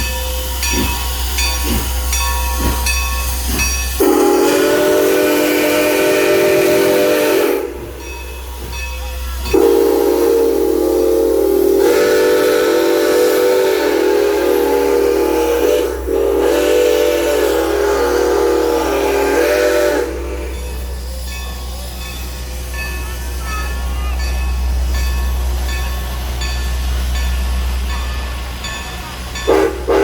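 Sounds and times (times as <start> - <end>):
train low rumble: 0.0 - 30.0
steam whistle blowing a chord: 4.0 - 8.0, 9.6 - 20.7, 29.5 - 30.0.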